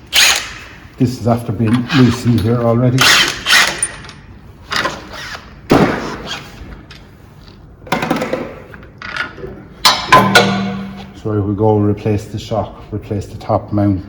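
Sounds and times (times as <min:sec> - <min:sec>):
metal knocks and clunks: 0:09.8 - 0:11.1.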